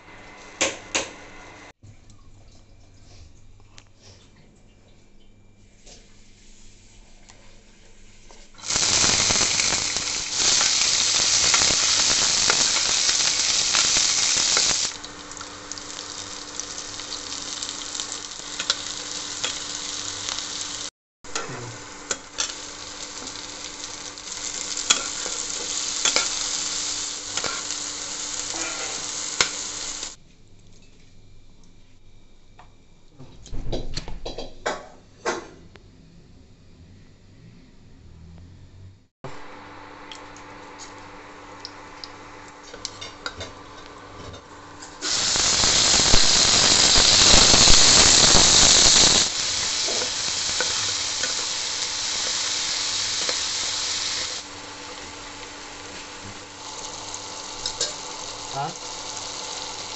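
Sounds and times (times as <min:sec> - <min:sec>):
vegetables sizzling in oil: 0:08.6 - 0:30.2, 0:39.4 - 0:59.9
spatula scraping wok: 0:21.3 - 0:30.2, 0:42.6 - 0:55.1.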